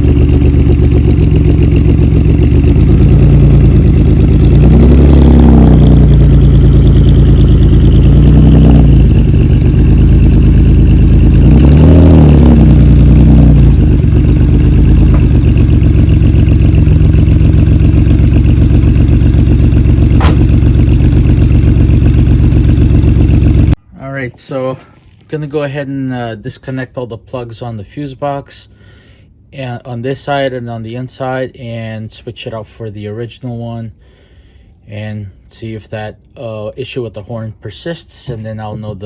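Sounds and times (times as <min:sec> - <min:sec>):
car engine running: 0:00.0 - 0:23.8.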